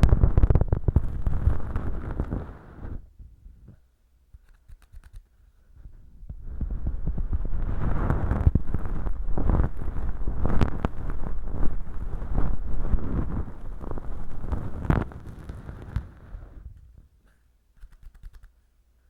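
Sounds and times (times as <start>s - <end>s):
earpick scratching in ear canal: 0.0s - 3.0s, 4.4s - 16.6s, 17.8s - 18.6s
faint clicks: 4.3s - 5.3s, 17.2s - 18.6s.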